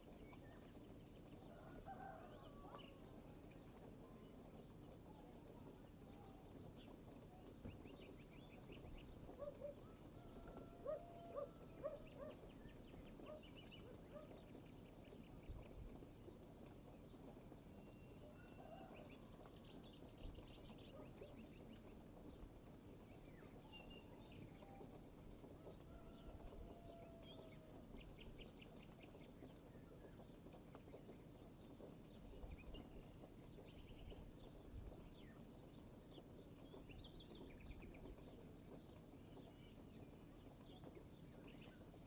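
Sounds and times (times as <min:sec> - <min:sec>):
birds trilling faintly: 0:08.8 - 0:14.6.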